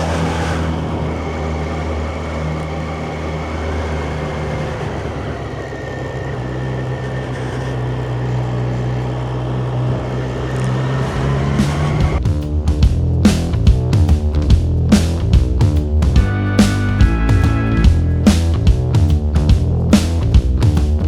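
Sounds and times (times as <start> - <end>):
rushing wind: 0.0 - 12.2
motorcycle engine running: 0.0 - 21.0
road noise: 0.0 - 21.0.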